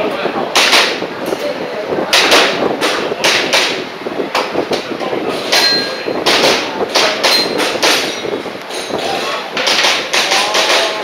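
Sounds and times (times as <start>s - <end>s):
pellets ringing steel targets: 5.6s - 6.0s.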